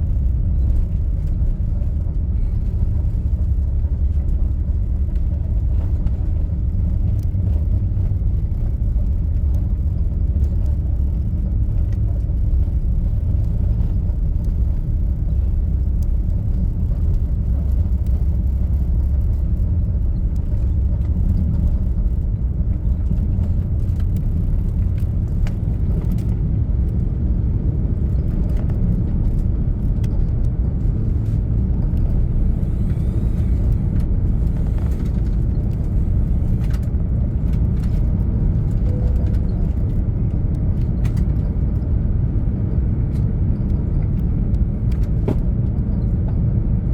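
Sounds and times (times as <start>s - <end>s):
jet engines rumbling: 21.5s - 43.9s.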